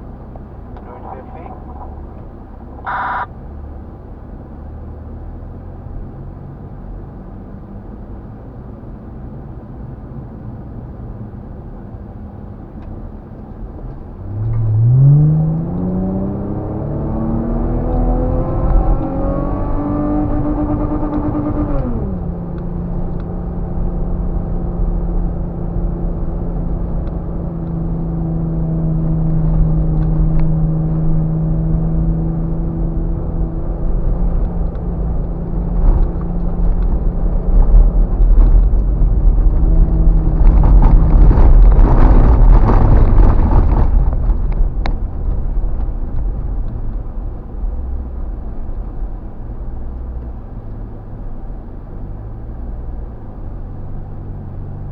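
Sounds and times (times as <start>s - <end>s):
low rumble: 0.0s - 4.2s, 13.6s - 54.2s
off-road vehicle engine droning: 0.0s - 54.9s.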